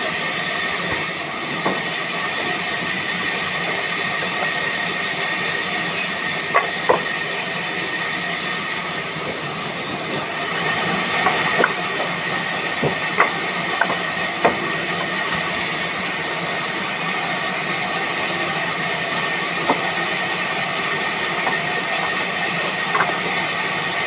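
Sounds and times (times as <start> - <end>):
woodworking machinery running: 0.0 - 24.0.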